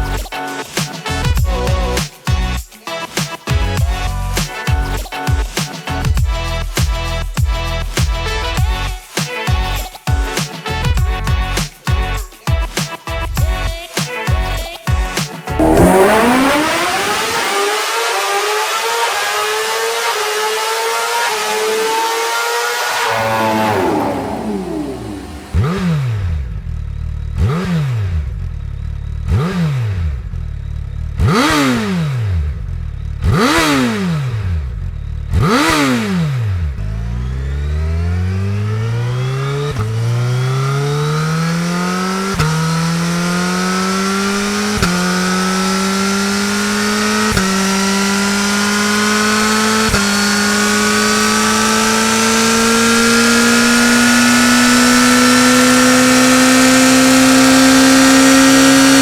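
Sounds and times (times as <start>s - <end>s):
motorcycle engine revving: 15.5s - 59.0s
motorcycle accelerating through gears: 15.6s - 59.0s.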